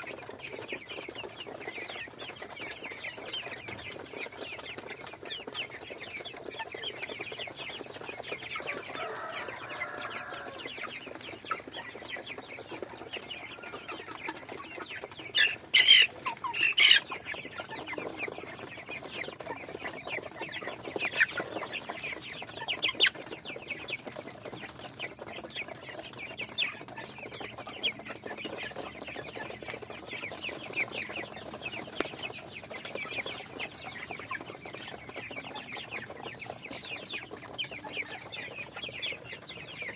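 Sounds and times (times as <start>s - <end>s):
chickens clucking: 0.0s - 39.9s
chicken squawks: 15.4s - 17.2s.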